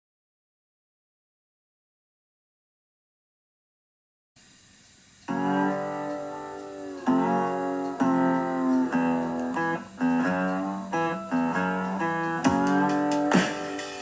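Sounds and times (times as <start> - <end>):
guitar strumming chords: 5.3 - 14.0.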